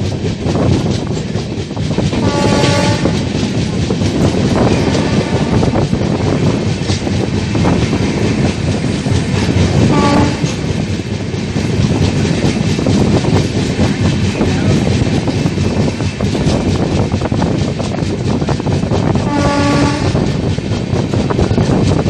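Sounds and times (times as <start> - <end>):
steady train rumble: 0.0 - 22.0
train wheels clattering over rail joints: 0.0 - 22.0
wind: 0.0 - 22.0
train horn note: 2.2 - 3.2, 9.9 - 10.6, 19.3 - 20.2.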